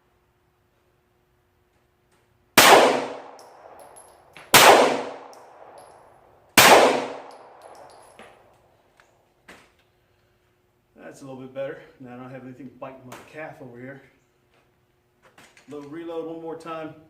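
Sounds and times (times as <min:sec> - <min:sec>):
pistol shots with ringing decay: 0:02.6 - 0:08.2.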